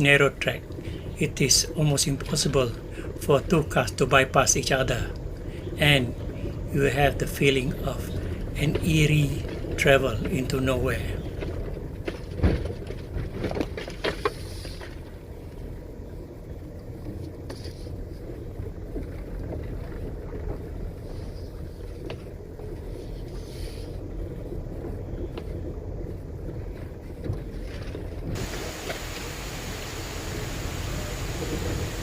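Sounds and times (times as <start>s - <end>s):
vehicle driving on gravel: 17.1s - 32.0s.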